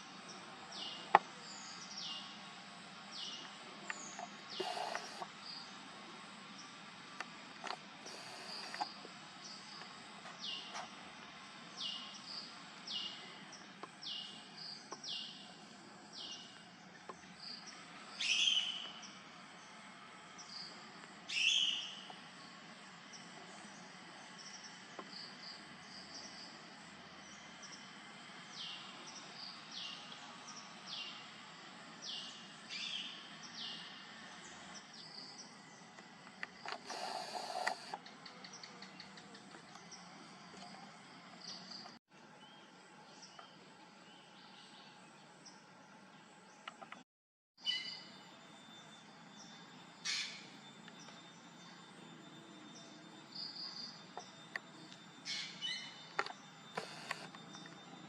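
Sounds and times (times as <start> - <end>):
bird calling: 3.2 - 5.4, 18.2 - 19.2, 55.2 - 58.0.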